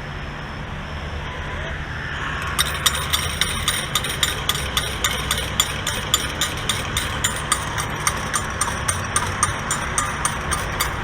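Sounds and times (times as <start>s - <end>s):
low machine hum: 2.0s - 11.0s
coins clinking into metal tray: 2.5s - 11.0s.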